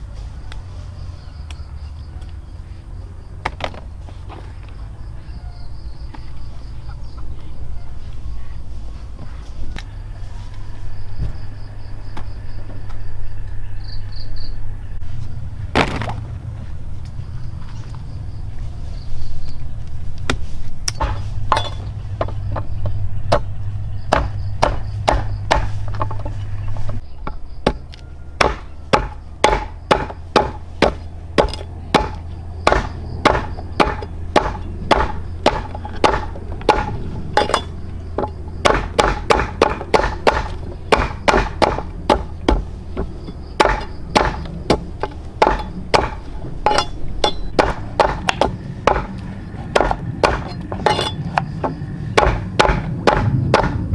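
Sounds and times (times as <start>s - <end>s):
continuous low hum: 0.0s - 53.9s
chopping plant material: 20.3s - 53.9s.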